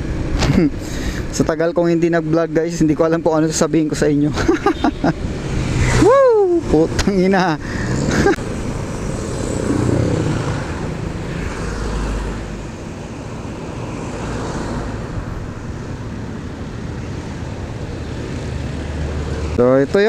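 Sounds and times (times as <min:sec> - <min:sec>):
road and traffic noise: 0:00.0 - 0:20.0
low engine hum: 0:07.6 - 0:19.6.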